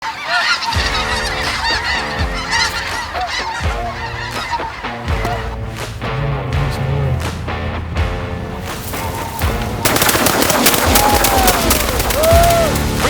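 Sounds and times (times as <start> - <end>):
geese honking: 0.0 - 7.2, 8.4 - 13.0
low sustained notes with thumps: 0.8 - 10.0.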